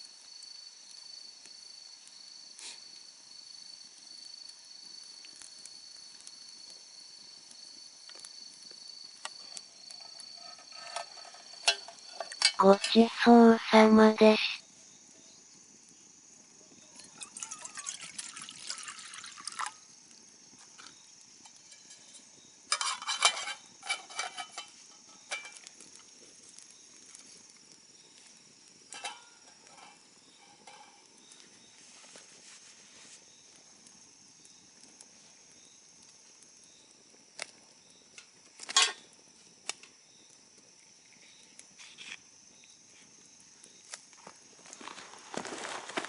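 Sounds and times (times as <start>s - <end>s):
cookware clinking and knocking: 10.0s - 13.0s, 22.7s - 24.7s.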